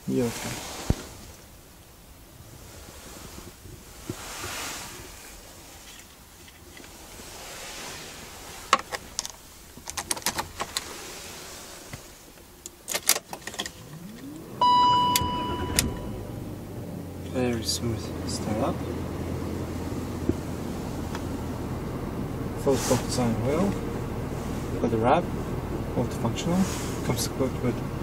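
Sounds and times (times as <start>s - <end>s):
car engine cranking and starting: 6.8s - 28.0s
loud steady high tone: 14.2s - 16.4s.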